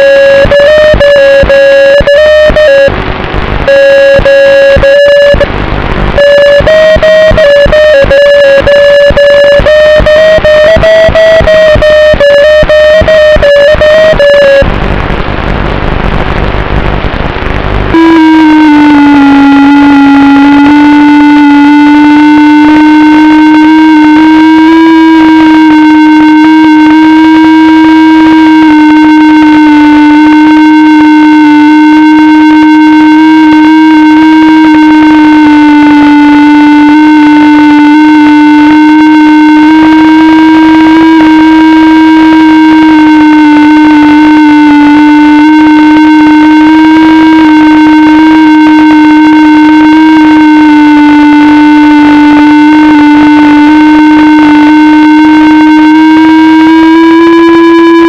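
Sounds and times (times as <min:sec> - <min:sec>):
electric motor and propeller droning: 0:17.9 - 0:58.0.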